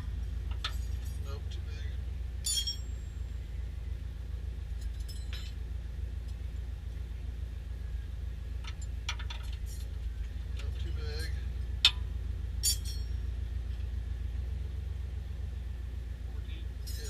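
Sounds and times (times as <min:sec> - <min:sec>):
steady low hum: 0:00.0 - 0:17.0
metal tool clinking: 0:02.4 - 0:03.2, 0:04.8 - 0:05.6, 0:12.6 - 0:13.3.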